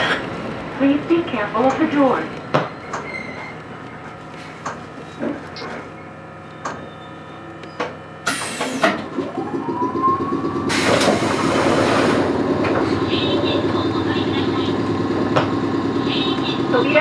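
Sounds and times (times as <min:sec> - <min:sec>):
humming drone of train equipment: 0:00.0 - 0:17.0
loud train hiss: 0:08.2 - 0:08.9, 0:10.7 - 0:12.4
rising whine: 0:08.6 - 0:12.7.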